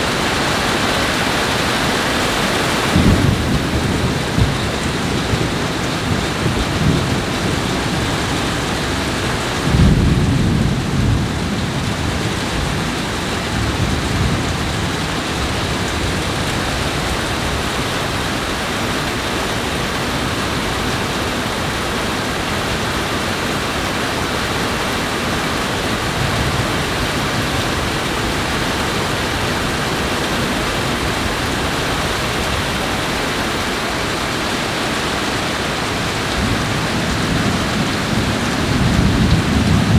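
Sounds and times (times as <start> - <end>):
thunder rumbling: 0.0 - 18.4, 35.9 - 39.9
heavy rain: 0.0 - 39.9.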